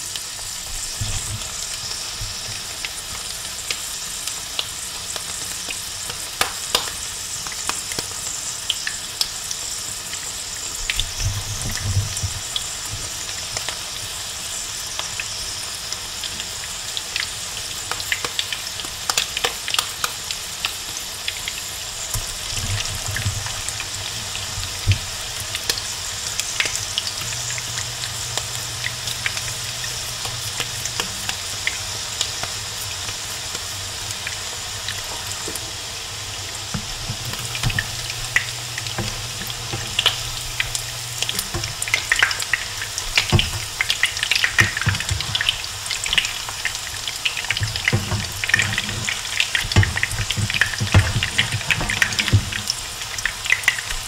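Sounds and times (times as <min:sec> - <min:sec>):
patties sizzling in oil: 0:00.0 - 0:54.0
spatulas against pan: 0:47.4 - 0:52.8.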